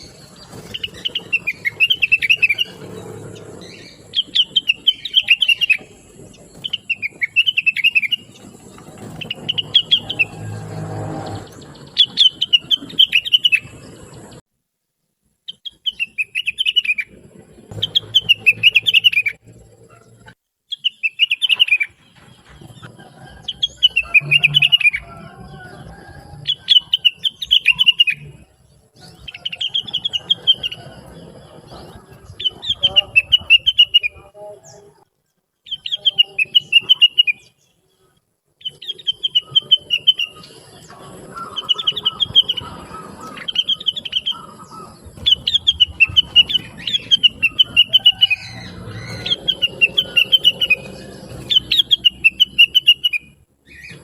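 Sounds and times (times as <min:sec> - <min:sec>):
bird chattering song: 0:00.0 - 0:14.4, 0:15.5 - 0:35.0, 0:35.6 - 0:54.0.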